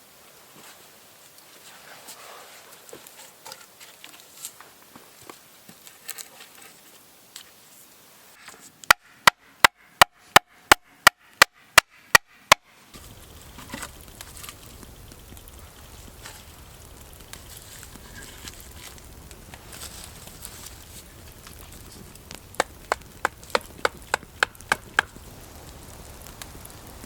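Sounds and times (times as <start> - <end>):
faint clicks and rustles: 0.5 - 7.8, 13.0 - 27.0.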